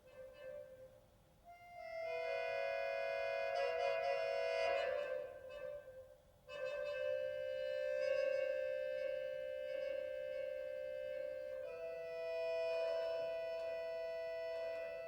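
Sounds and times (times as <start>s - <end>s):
accordion playing slow chords: 1.7s - 4.4s, 7.0s - 15.0s.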